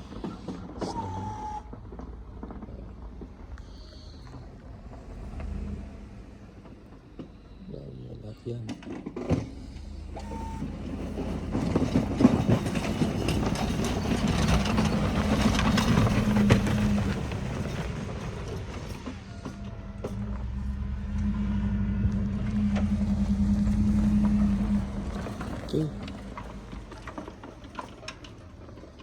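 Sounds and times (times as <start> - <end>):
motor humming: 19.2 - 27.6.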